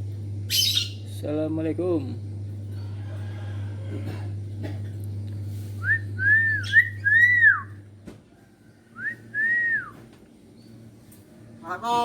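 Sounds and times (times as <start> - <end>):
bird whistling: 0.5 - 1.0, 5.8 - 7.8, 9.0 - 10.0.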